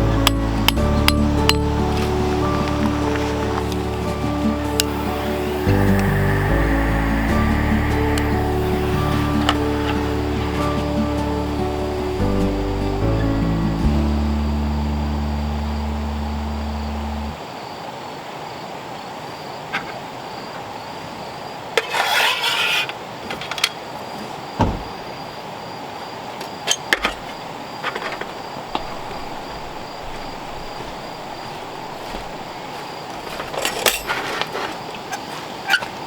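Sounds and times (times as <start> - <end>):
pulsing insect trill: 0.0 - 17.8, 28.4 - 34.2
outdoor hiss: 0.0 - 35.7
camp gear clicking and clinking: 26.6 - 36.0.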